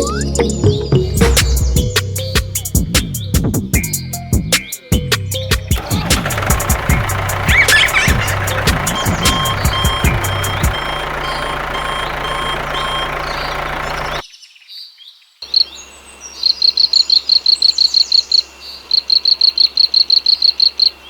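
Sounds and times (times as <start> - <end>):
vehicle engine running: 5.7 - 14.2
bird chirping rapid short notes: 5.8 - 14.2
reversing beeps: 7.6 - 13.5.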